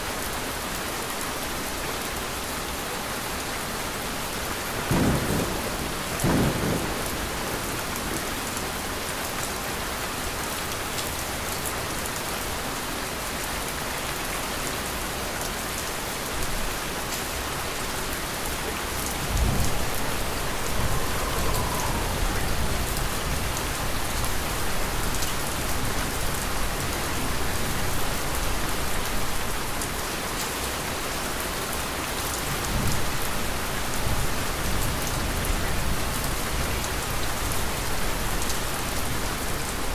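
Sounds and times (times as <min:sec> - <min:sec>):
steady rain falling: 0:00.0 - 0:39.9
low rolls of thunder: 0:04.8 - 0:08.3, 0:18.7 - 0:25.1.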